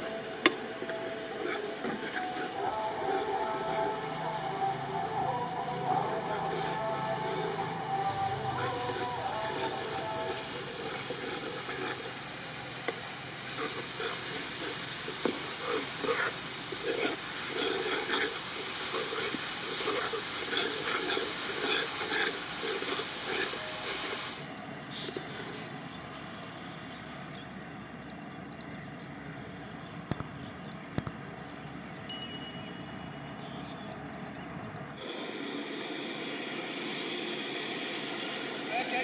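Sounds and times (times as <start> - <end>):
eggplant sizzling in hot oil: 0.4 - 24.5
utensil clinking and scraping pan: 1.3 - 4.0, 8.5 - 24.0.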